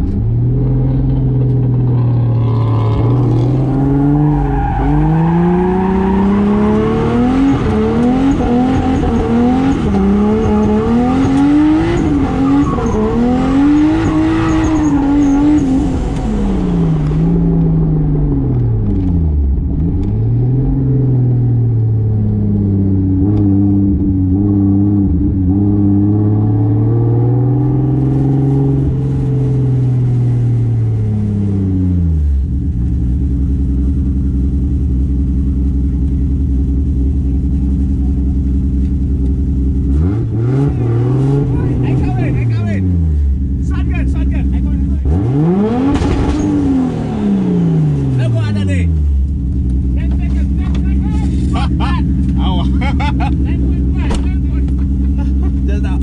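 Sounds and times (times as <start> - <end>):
car engine accelerating hard: 0.0 - 56.0.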